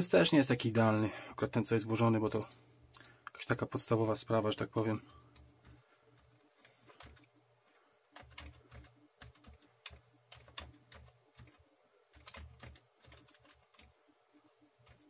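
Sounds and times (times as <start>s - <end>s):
keyboard keys clicking: 6.6s - 7.3s, 8.2s - 13.9s.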